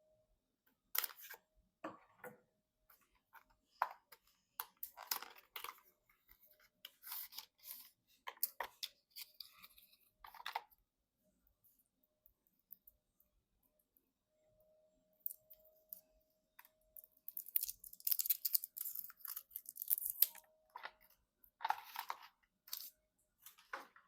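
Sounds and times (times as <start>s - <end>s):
handling computer parts and cables: 2.9s - 10.8s, 17.3s - 24.0s.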